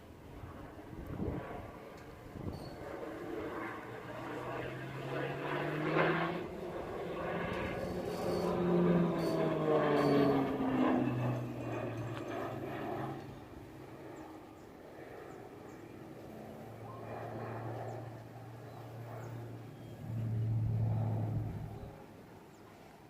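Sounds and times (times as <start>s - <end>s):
jet aircraft engine: 0.0s - 23.0s
low steady hum: 6.8s - 23.0s.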